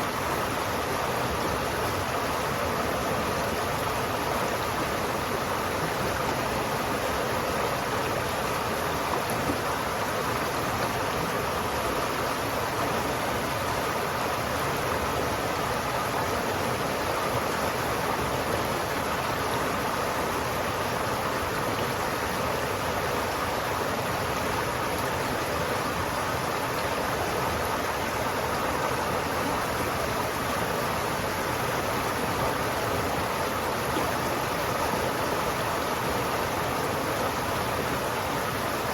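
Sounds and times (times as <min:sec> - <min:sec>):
river water flowing: 0:00.0 - 0:38.9.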